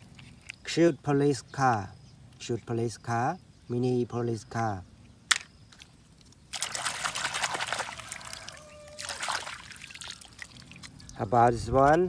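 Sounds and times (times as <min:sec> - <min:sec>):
sharp click: 0:05.3 - 0:05.6
water splashing and trickling: 0:05.7 - 0:11.4.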